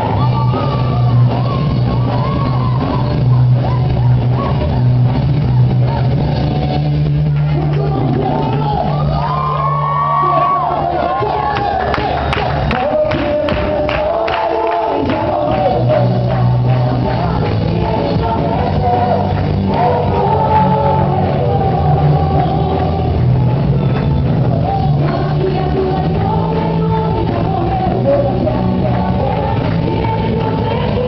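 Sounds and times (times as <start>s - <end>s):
band with bass line: 0.0s - 31.0s
voices singing together: 12.8s - 31.0s.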